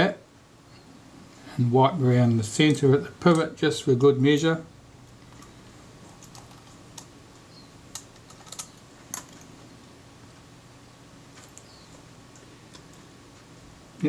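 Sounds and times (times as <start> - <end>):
small metal parts clicking: 7.9 - 9.5.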